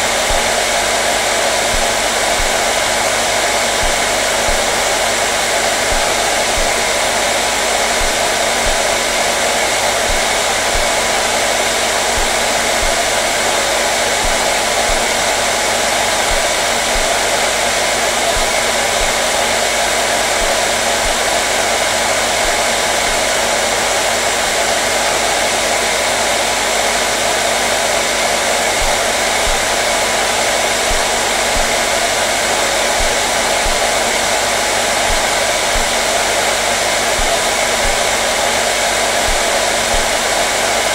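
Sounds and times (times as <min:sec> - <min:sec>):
faint motor hum: 0:00.0 - 0:23.6
hair dryer blowing: 0:00.0 - 0:40.9.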